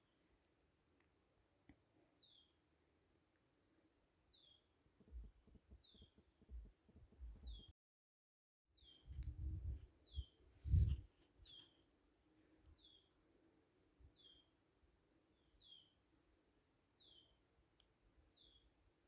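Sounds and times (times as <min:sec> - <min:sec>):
low rumbling thumps: 0:09.1 - 0:09.9.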